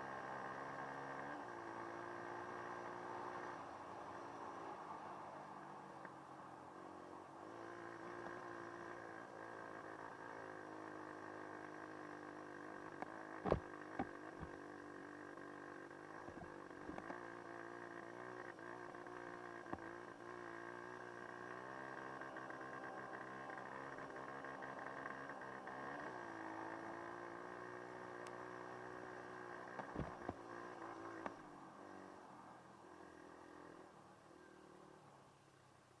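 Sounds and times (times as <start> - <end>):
dirt bike engine revving: 13.4 - 14.6.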